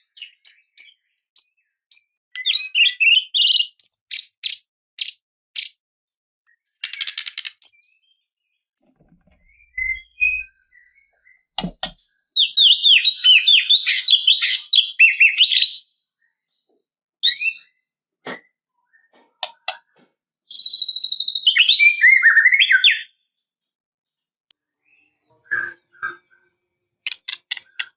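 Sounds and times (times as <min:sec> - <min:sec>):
bird singing whistled phrases: 0:00.2 - 0:04.6, 0:09.4 - 0:11.5, 0:12.4 - 0:15.9, 0:17.2 - 0:17.8, 0:20.5 - 0:23.2
buzzy bird rattle: 0:27.1 - 0:27.9.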